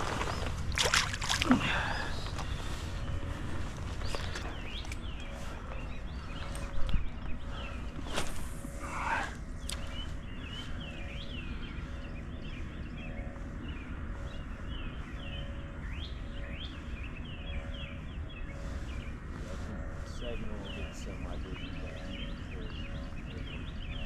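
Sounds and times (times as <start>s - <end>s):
birds chirping: 0.0s - 24.0s
steady low rumble: 0.0s - 24.0s.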